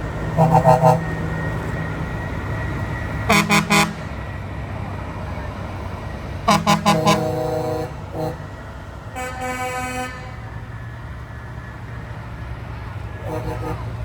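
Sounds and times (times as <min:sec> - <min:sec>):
low rumble of running trucks: 0:00.0 - 0:14.0
truck air horn blasts: 0:00.3 - 0:01.5, 0:03.2 - 0:04.2, 0:06.4 - 0:10.6, 0:13.1 - 0:14.0.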